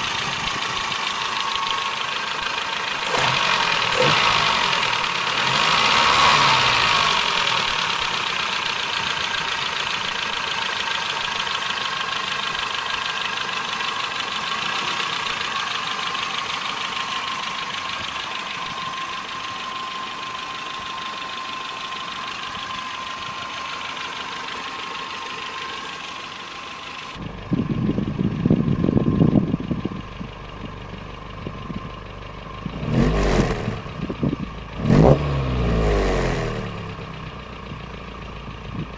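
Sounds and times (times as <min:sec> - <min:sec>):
car engine idling with ticking: 0:00.0 - 0:38.9.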